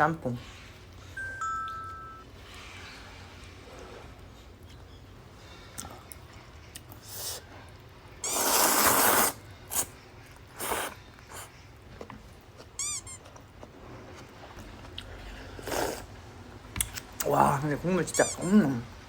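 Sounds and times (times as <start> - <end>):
person slurping noodles: 8.3 - 9.9, 10.6 - 11.5, 15.4 - 16.1.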